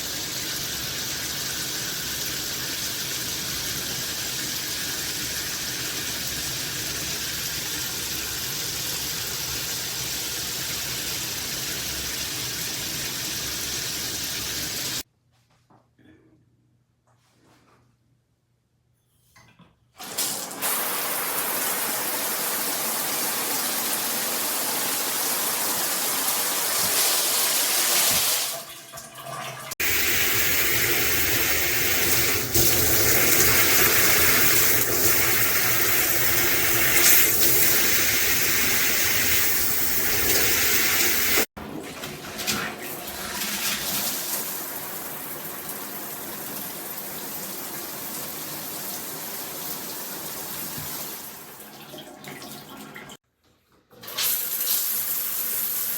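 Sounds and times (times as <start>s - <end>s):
shower head spraying water: 20.0s - 28.6s, 29.8s - 41.5s.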